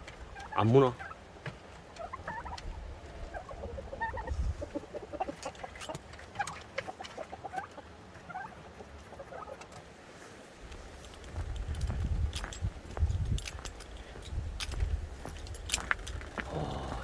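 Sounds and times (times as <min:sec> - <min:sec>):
chickens clucking: 0:00.0 - 0:10.3.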